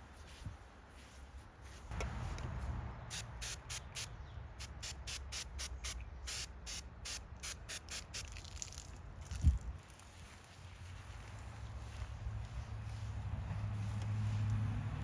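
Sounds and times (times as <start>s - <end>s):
low traffic rumble: 0.0s - 15.0s
spray bottle squirts: 3.1s - 10.0s.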